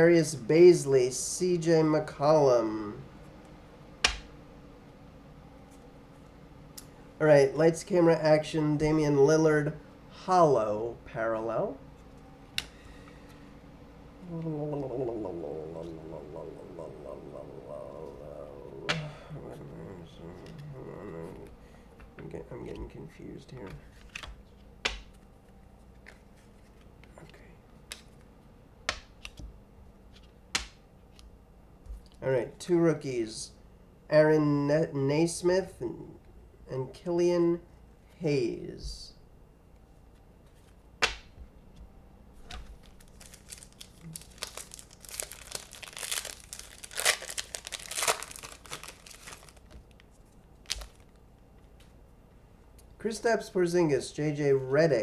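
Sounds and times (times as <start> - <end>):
room hum: 0.0 - 55.0
wrapper tearing and crinkling: 42.7 - 49.8, 50.6 - 51.1.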